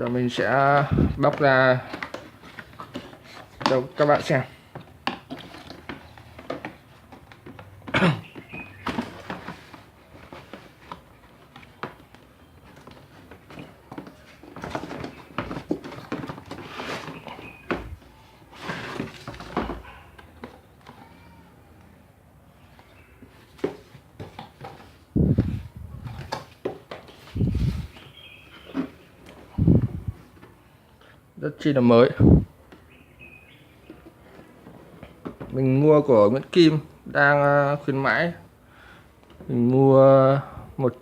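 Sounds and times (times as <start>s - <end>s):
packaging rustling: 0.3s - 20.8s.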